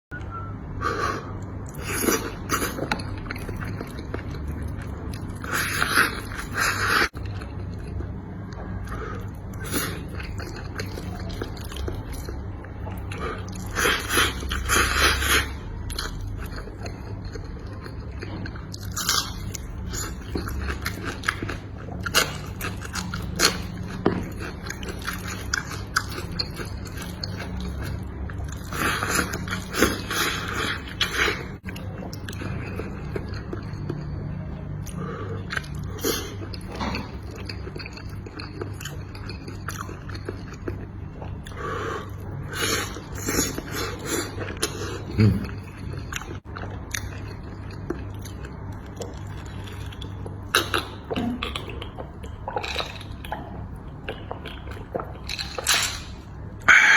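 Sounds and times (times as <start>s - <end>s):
chewing crunchy food: 0.4s - 56.9s.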